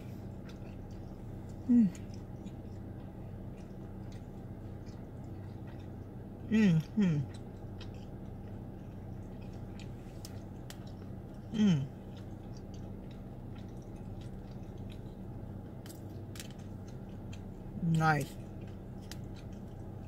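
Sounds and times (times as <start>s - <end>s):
low hum: 0.0s - 20.0s
person chewing noodles: 0.0s - 20.0s
person humming mmm: 1.6s - 2.1s, 6.5s - 7.4s, 11.5s - 12.0s.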